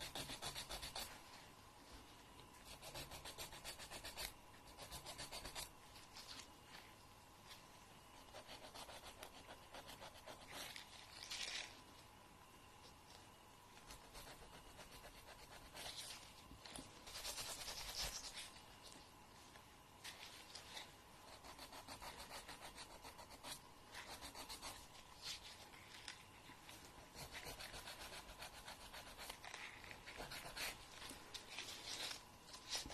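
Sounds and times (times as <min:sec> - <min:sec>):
fingernail being filed: 0:00.0 - 0:01.1, 0:02.7 - 0:05.7, 0:08.3 - 0:10.6.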